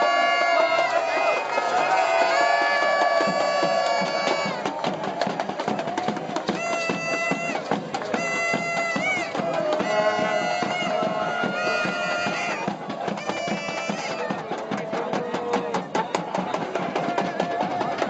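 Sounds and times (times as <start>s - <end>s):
drums beating: 0.0s - 18.0s
bagpipes playing melody: 6.6s - 14.3s.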